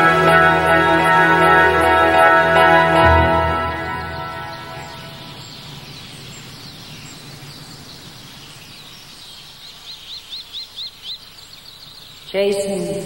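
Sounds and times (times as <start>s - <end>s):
outdoor hiss: 0.0s - 13.0s
bird chirping high: 2.0s - 13.0s
bird calls: 3.0s - 13.0s.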